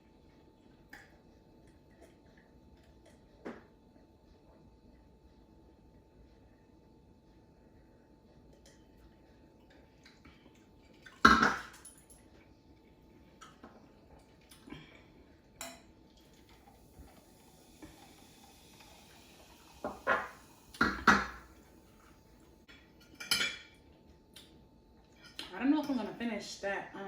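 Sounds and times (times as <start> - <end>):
cutlery and dishes knocking: 19.9 - 21.4.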